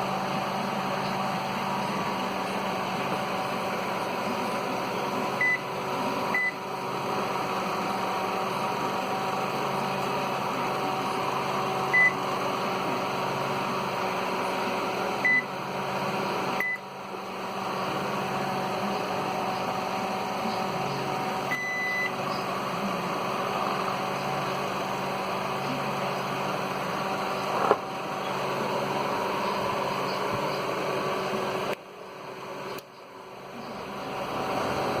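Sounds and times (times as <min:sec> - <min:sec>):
microwave buzzer beeps: 0:05.3 - 0:06.7, 0:11.8 - 0:12.3, 0:15.2 - 0:15.6, 0:16.5 - 0:16.9, 0:20.5 - 0:22.6.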